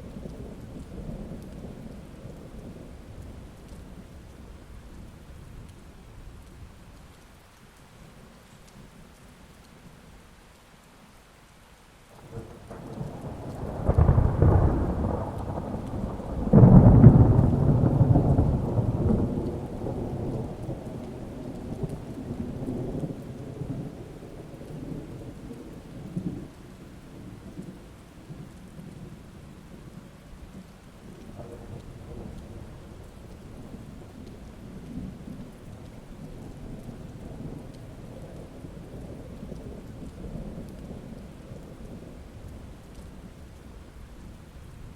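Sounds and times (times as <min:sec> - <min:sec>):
steady rain: 0:00.0 - 0:44.9
thunder rolling: 0:12.2 - 0:26.6.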